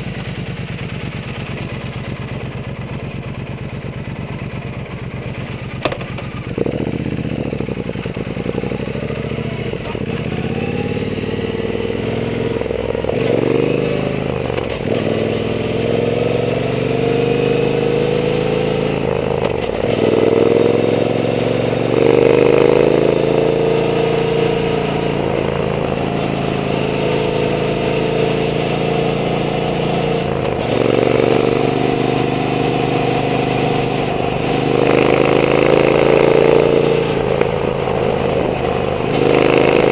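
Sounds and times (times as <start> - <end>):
motorcycle engine while riding: 0.0 - 39.9.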